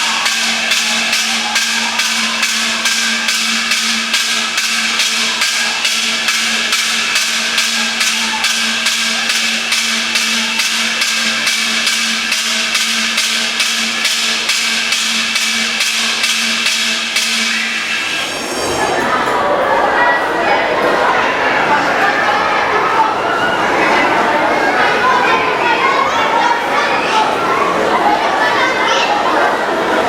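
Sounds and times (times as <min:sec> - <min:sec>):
alarm bell ringing: 0:00.0 - 0:19.1.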